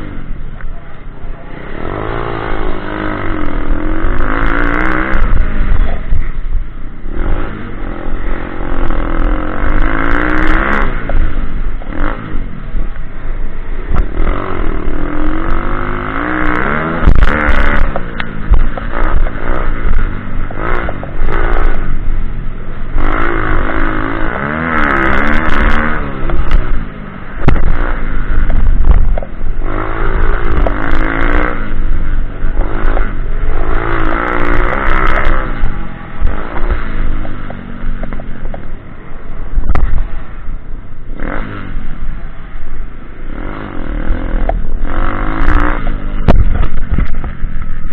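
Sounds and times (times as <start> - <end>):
pit bike engine revving: 0.0 - 47.9.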